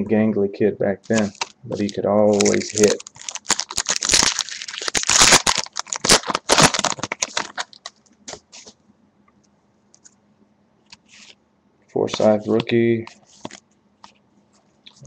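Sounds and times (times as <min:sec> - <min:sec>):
foil wrapper crinkling: 0:01.1 - 0:08.7.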